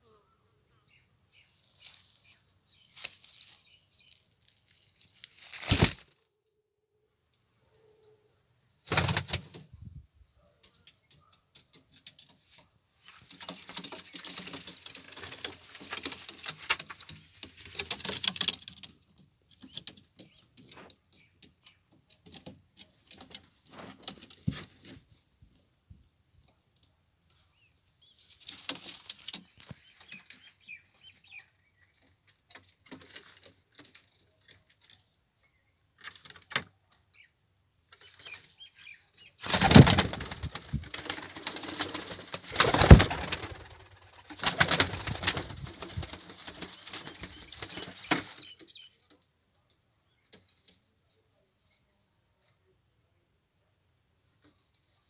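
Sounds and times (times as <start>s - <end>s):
pigeon wingbeats: 8.9s - 9.7s, 13.2s - 18.8s, 39.4s - 48.5s
clicks and rustles: 10.6s - 25.0s.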